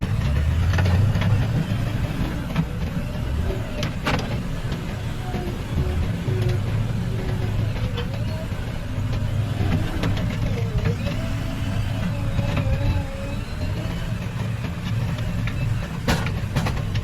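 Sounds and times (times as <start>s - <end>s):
heavy diesel engine rumbling: 0.0s - 17.0s.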